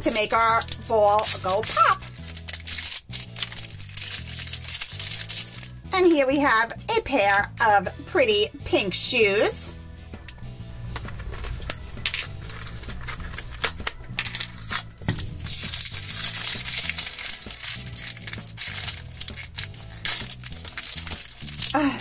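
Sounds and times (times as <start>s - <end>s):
plastic wrapping crinkling and tearing: 0.0s - 5.8s, 11.2s - 22.0s.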